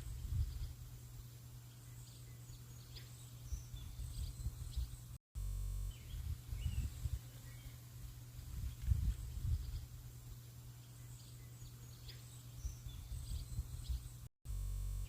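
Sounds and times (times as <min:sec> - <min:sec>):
birds chirping faintly: 0:00.0 - 0:05.2, 0:05.8 - 0:14.3.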